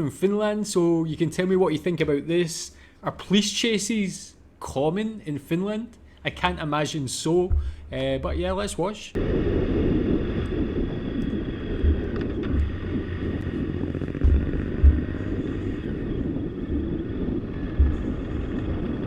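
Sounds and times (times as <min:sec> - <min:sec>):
wind buffeting microphone: 0:07.4 - 0:19.0
motorcycle engine: 0:09.2 - 0:19.0.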